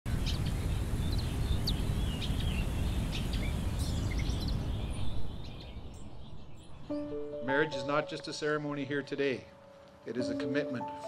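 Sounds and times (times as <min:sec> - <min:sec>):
low outdoor rumble: 0:00.1 - 0:06.2
small birds chirping: 0:00.1 - 0:08.6.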